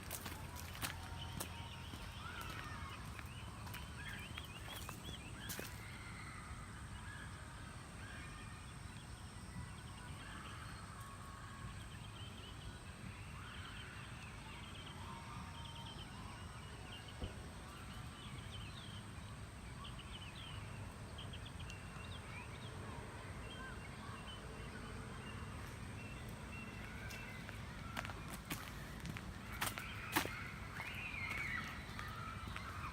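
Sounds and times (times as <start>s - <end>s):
birds chirping and calling: 0.2s - 5.8s, 26.2s - 32.9s.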